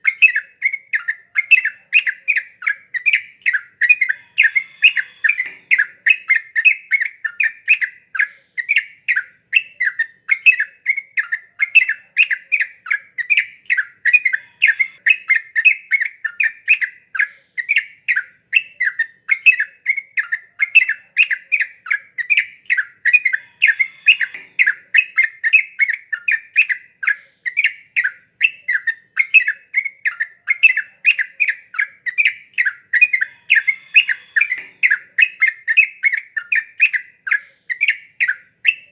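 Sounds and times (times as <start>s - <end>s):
bulbul chattering call: 0.0s - 38.9s.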